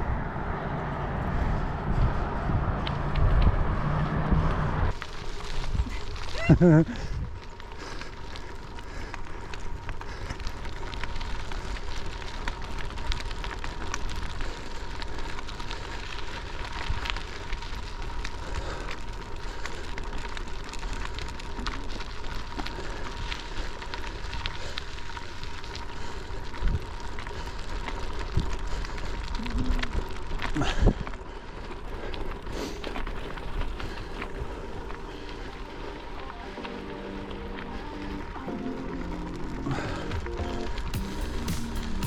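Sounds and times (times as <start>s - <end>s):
wind noise: 0.0s - 18.6s
bicycle tyres crunching on gravel: 0.0s - 42.0s.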